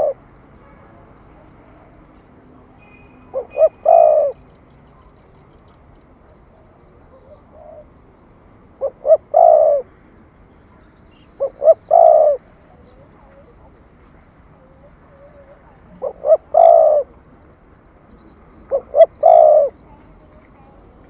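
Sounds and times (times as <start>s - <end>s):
dove cooing: 0.0s - 1.9s, 2.8s - 4.4s, 7.0s - 7.9s, 8.7s - 10.0s, 11.2s - 17.2s, 18.6s - 20.8s.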